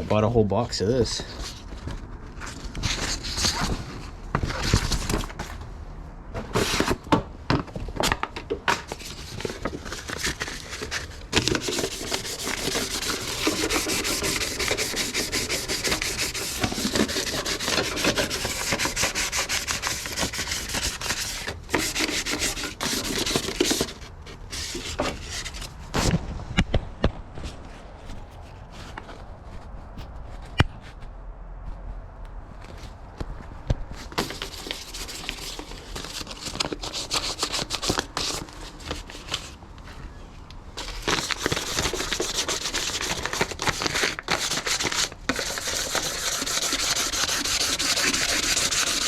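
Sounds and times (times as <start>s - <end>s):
sandpaper rubbing on sheet metal: 11.4s - 25.6s, 34.2s - 39.6s, 40.8s - 49.0s.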